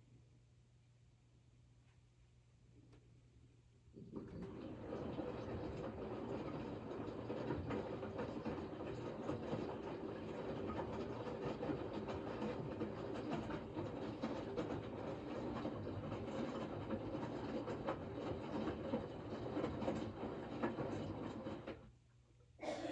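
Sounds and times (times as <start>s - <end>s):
washing machine rumbling and rattling: 3.9s - 21.9s.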